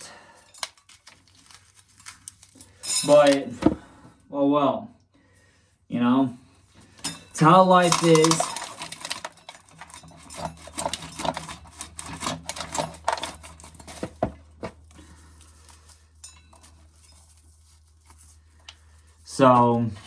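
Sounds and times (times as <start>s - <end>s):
corn kernels clicking and rattling: 7.3s - 14.1s.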